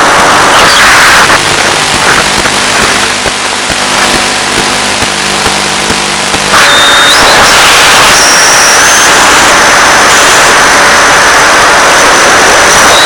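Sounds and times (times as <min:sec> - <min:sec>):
high steady whistle: 0:00.0 - 0:01.5, 0:06.4 - 0:13.0
radio static hiss: 0:00.0 - 0:13.0.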